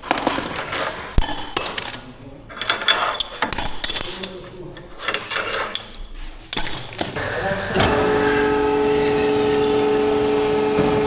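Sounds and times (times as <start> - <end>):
metal tools clinking: 0.0 - 7.2.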